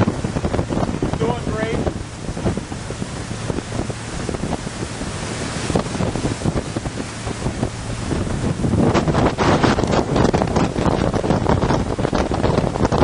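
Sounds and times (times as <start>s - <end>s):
boat engines droning: 0.0s - 13.0s
rushing water: 0.0s - 13.0s
wind buffeting microphone: 0.0s - 13.0s.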